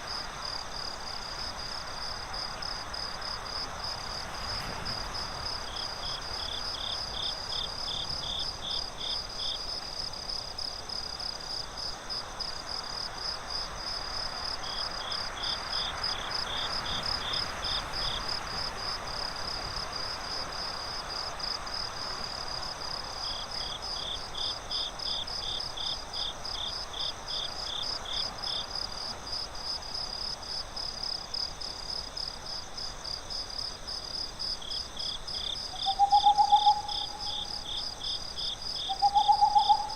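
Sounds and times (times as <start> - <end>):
soft steady hiss: 0.0 - 39.9
cricket lower trill: 35.8 - 38.0, 38.8 - 39.9
cricket high trill: 38.8 - 39.9.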